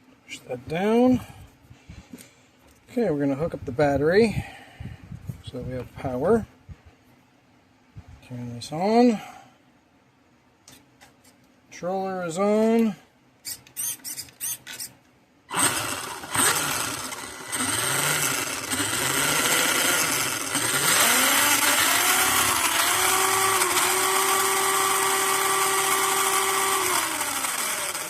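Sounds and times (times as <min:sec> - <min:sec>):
toy truck electric motor whine: 0:13.4 - 0:14.9, 0:15.5 - 0:28.0.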